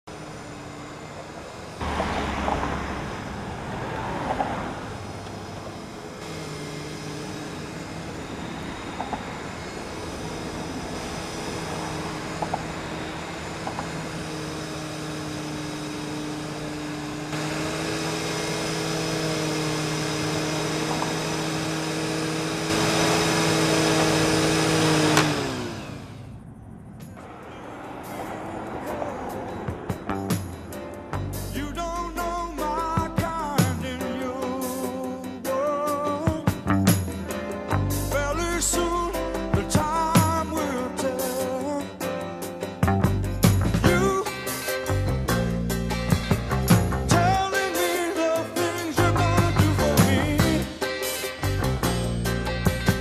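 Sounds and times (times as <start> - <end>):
vacuum cleaner motor whining: 0.0 - 26.5.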